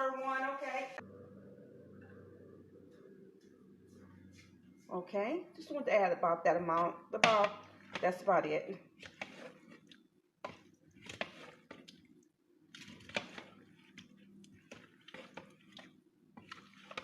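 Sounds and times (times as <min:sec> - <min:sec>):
utensil taps and scrapes in bowl: 0:06.7 - 0:08.2
wet squishing of food mixing: 0:06.7 - 0:17.0.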